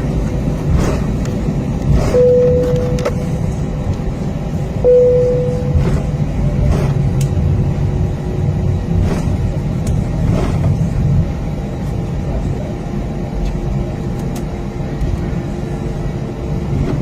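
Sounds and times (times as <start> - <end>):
low rumble of jet engines idling: 0.0 - 17.0
single-pitch cabin tones: 2.2 - 3.4, 4.8 - 5.9.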